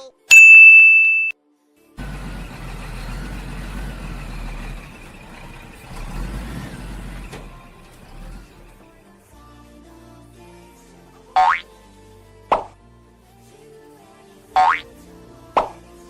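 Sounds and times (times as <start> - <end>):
loud electronic beep: 0.3 - 1.3
vehicle engine rumbling: 2.0 - 9.0.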